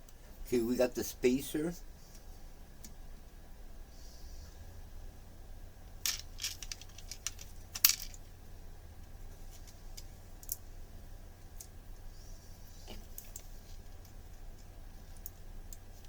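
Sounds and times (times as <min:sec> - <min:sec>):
small hard parts clicking: 0:05.9 - 0:08.3, 0:09.5 - 0:10.7.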